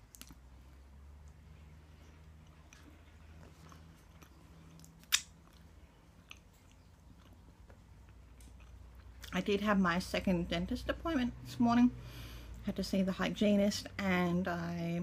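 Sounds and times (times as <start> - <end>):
chewing mouth sounds: 0.0 - 9.4.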